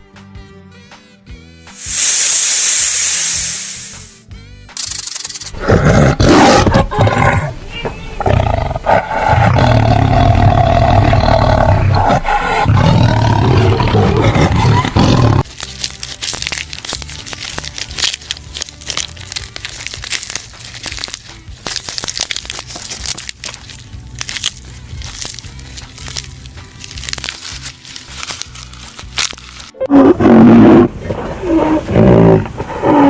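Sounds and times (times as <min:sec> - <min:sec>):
large animal roaring: 0:05.6 - 0:07.6, 0:08.2 - 0:15.4, 0:29.8 - 0:33.0
crunching and crackling clicks: 0:12.8 - 0:29.8.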